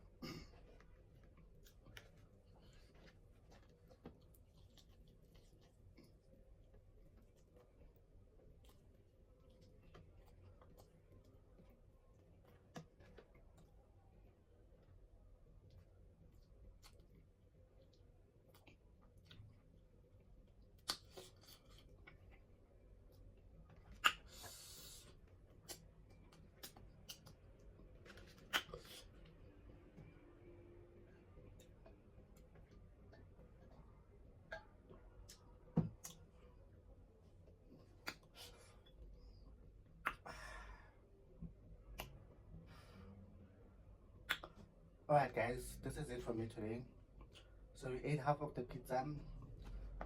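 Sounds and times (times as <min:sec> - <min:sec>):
mouth smacks: 0:23.9 - 0:25.0, 0:28.4 - 0:29.1, 0:38.0 - 0:38.5, 0:40.0 - 0:40.3, 0:44.2 - 0:44.6
soft breaths: 0:42.5 - 0:43.5.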